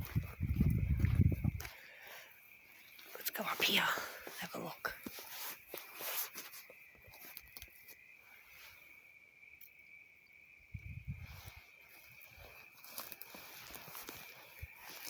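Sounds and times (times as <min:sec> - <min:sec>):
footsteps on dry ground: 0:00.0 - 0:02.0, 0:12.0 - 0:15.0
cricket trilling: 0:00.0 - 0:15.0.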